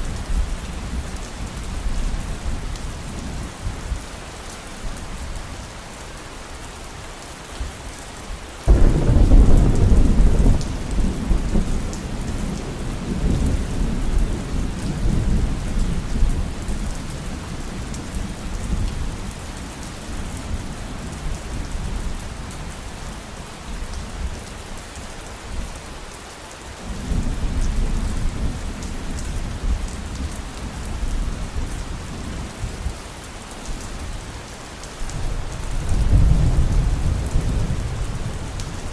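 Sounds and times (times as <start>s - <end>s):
heavy rain: 0.0s - 38.9s
thunder rumbling: 8.7s - 16.6s.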